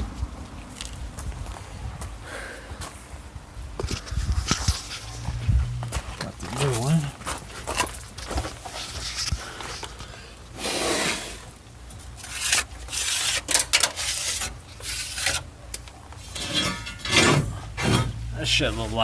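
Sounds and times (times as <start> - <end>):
rubbing and scraping: 3.8 - 19.0.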